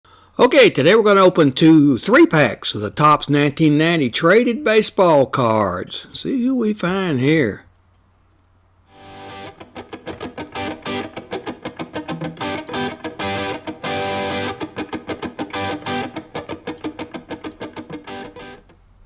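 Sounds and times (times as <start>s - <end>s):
fast electric guitar instrumental: 9.0s - 18.7s.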